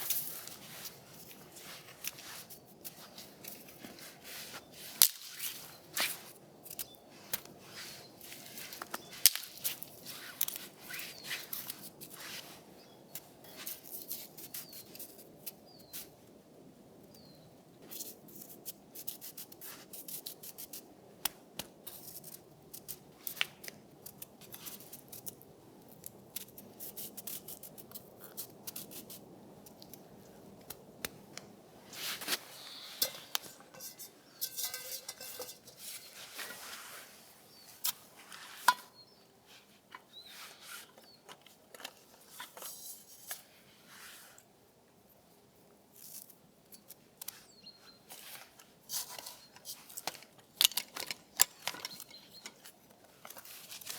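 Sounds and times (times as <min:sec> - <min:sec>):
faint steady hiss: 0:00.0 - 0:50.7
irregular sharp clicks and cracks: 0:18.5 - 0:31.5.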